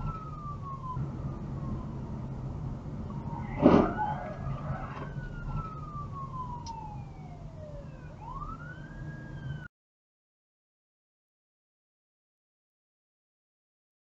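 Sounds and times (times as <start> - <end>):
emergency vehicle siren wailing: 0.0 - 9.7
engine and road noise: 0.0 - 9.7
loud impact bang: 3.4 - 4.2.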